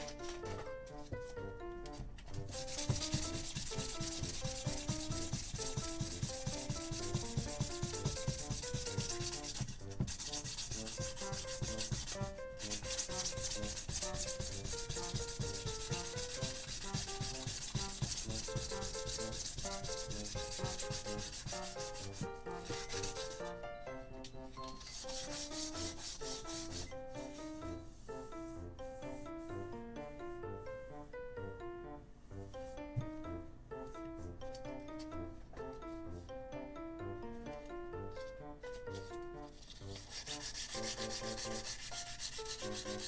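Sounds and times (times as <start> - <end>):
sandpaper rubbing: 1.9 - 23.6, 24.6 - 27.6, 38.7 - 43.0.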